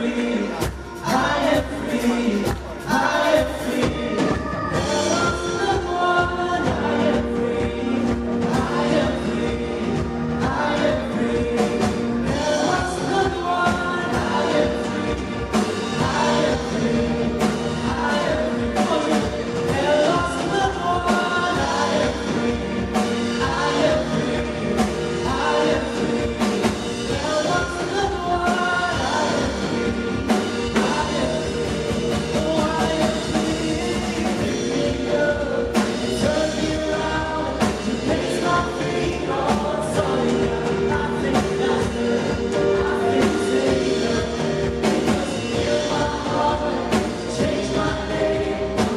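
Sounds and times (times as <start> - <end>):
band playing upbeat song: 0.0 - 48.9
people singing: 0.0 - 48.9.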